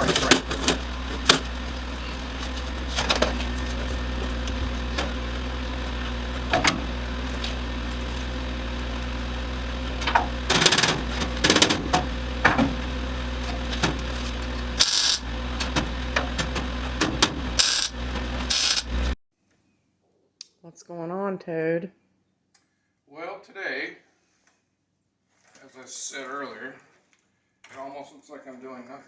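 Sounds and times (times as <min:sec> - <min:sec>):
metal parts scraping: 0:00.0 - 0:04.0, 0:13.4 - 0:19.1
motor humming: 0:00.0 - 0:19.2.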